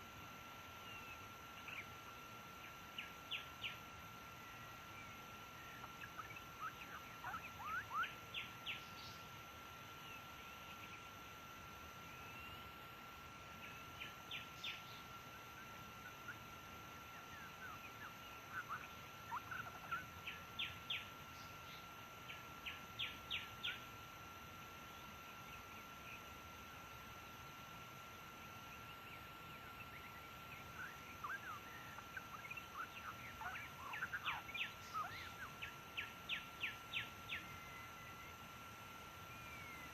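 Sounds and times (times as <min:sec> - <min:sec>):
bird singing whistled notes: 0:30.0 - 0:38.3, 0:39.3 - 0:39.9.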